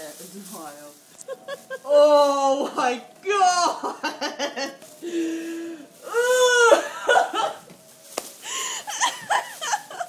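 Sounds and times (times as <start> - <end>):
woman groaning and wailing: 1.8 - 2.6, 6.0 - 7.1
woman whimpering: 6.0 - 6.9.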